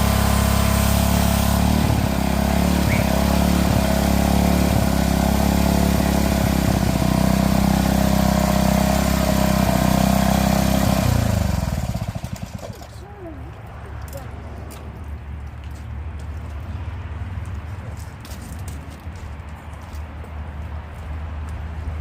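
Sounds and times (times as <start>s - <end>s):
engine sputtering to a stop: 0.0s - 13.0s
pressure washer engine running: 0.0s - 13.0s.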